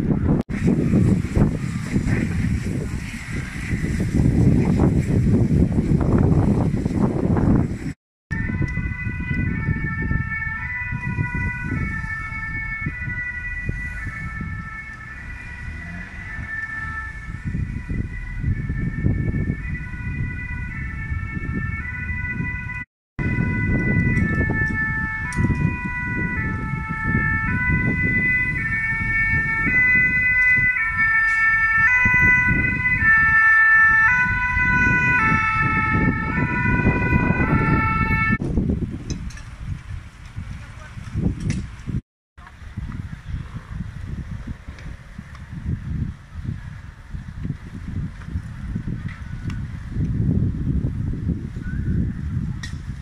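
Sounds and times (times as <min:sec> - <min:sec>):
two-tone emergency sirens: 0:00.0 - 0:06.4, 0:08.3 - 0:38.5, 0:47.4 - 0:53.0
low rumble of wind or traffic: 0:00.0 - 0:53.0.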